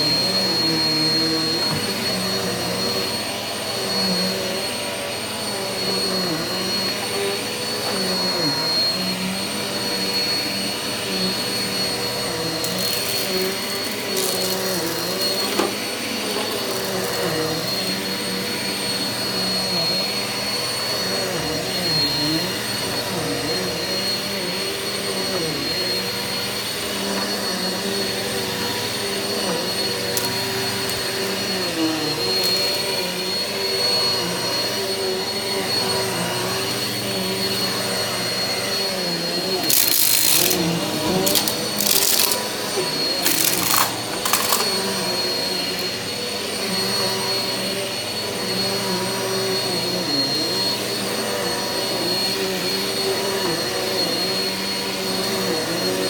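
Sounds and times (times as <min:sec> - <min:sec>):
vacuum cleaner on carpet: 0:00.0 - 0:56.0.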